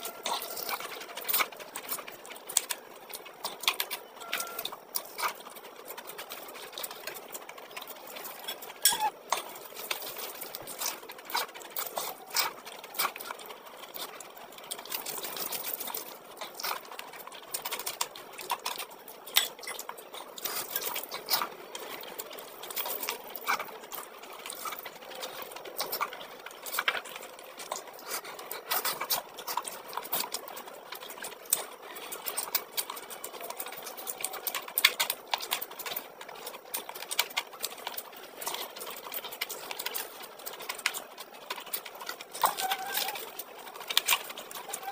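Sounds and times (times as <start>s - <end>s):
wet chewing and mouth clicks: 0.0s - 44.9s.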